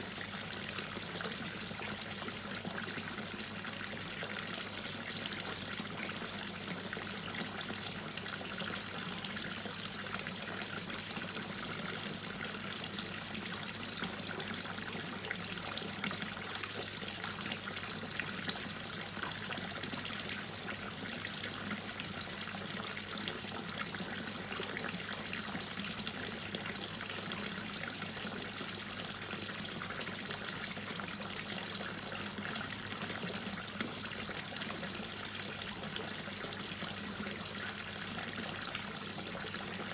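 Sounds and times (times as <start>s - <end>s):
water dripping and trickling: 0.1s - 39.9s.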